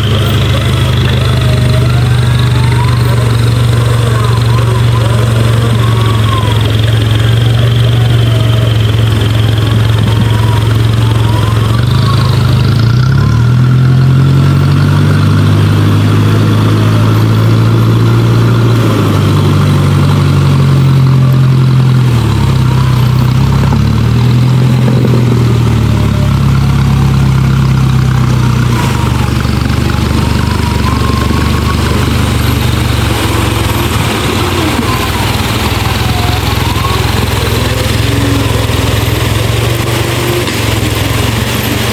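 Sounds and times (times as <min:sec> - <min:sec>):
off-road vehicle engine revving: 0:00.0 - 0:41.9.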